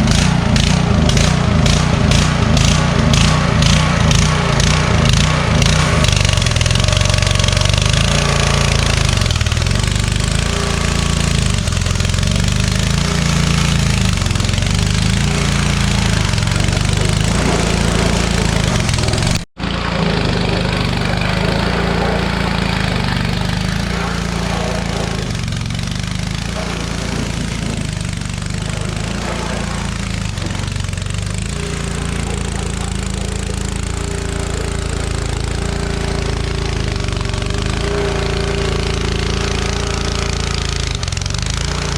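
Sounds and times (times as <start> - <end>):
small gasoline engine running: 0.0 - 41.9.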